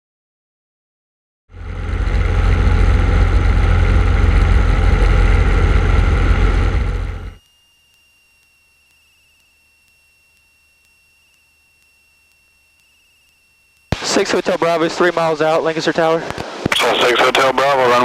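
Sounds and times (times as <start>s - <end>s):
airplane engine and propeller droning: 1.5s - 7.4s
faint steady tone: 1.6s - 18.0s.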